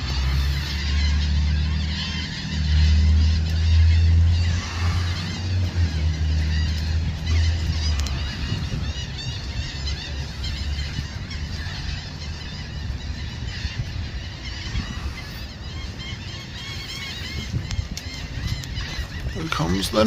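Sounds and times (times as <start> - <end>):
flock of gulls calling: 0.0 - 20.0
low steady rumble: 0.0 - 20.0.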